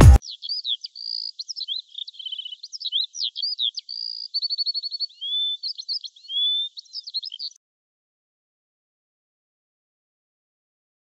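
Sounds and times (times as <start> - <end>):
bird song with chirps and trills: 0.2 - 7.6.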